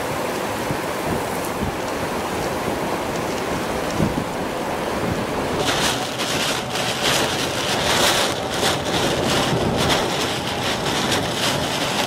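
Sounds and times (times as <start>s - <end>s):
heavy rain beating on a car: 0.0s - 12.0s
tyre spray on flooded road: 0.0s - 12.0s.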